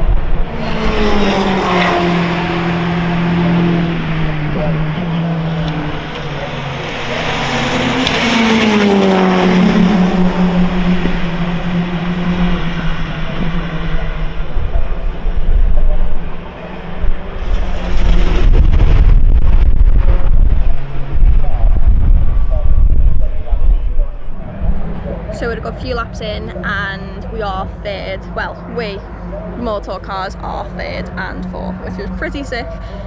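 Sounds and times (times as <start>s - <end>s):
car passing by: 0.0s - 22.8s
loud low rumble: 0.0s - 33.0s
race car engines: 0.0s - 33.0s.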